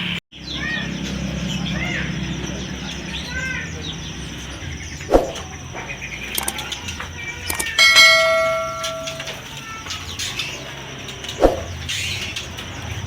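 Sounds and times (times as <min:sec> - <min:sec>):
faint birds chirping: 0:00.0 - 0:13.0
metallic ring: 0:07.5 - 0:09.5.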